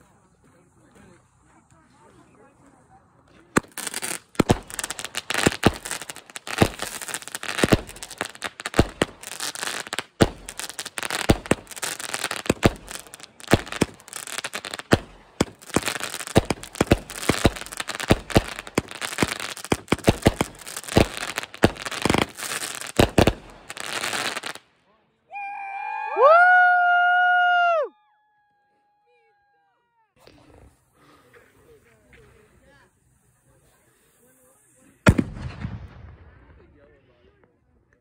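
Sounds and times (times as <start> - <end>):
fireworks crackling: 3.4 - 24.7, 30.2 - 36.7
fireworks bangs: 3.5 - 24.6, 35.0 - 36.8.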